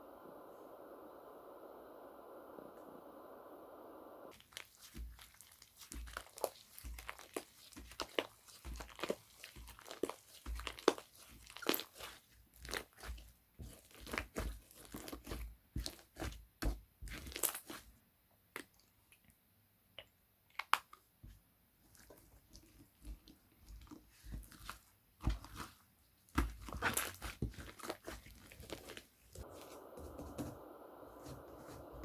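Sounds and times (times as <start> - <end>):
slime crackling and popping: 4.3 - 17.8, 22.5 - 29.5.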